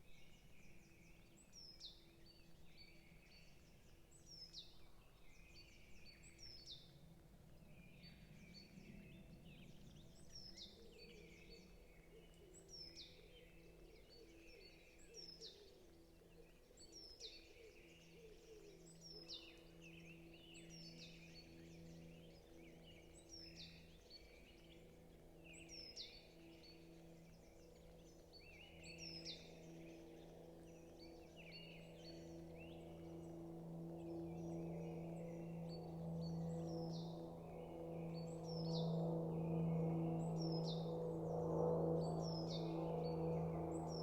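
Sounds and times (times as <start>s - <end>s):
birds chirping: 0.0s - 44.0s
low hum: 18.6s - 44.0s.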